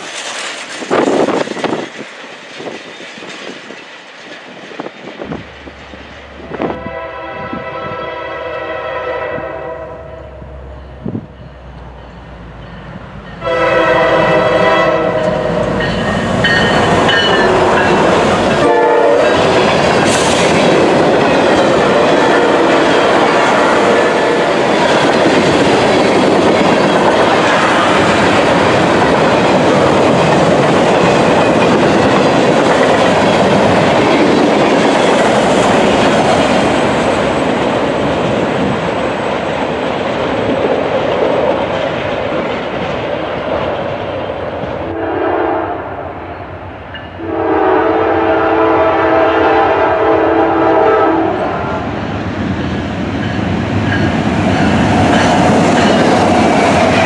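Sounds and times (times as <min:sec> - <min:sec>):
freight cars clickety-clack: 0:00.0 - 0:06.4, 0:15.2 - 0:44.9, 0:52.4 - 0:57.0
diesel locomotive horn blasts: 0:06.4 - 0:11.4, 0:13.3 - 0:19.7, 0:21.7 - 0:24.5, 0:44.9 - 0:46.1, 0:47.2 - 0:51.8.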